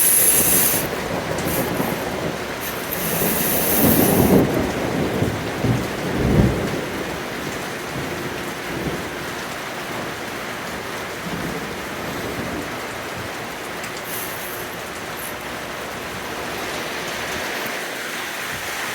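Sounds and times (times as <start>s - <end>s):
thunder rolling: 0.0s - 9.3s
heavy rain: 0.0s - 18.9s.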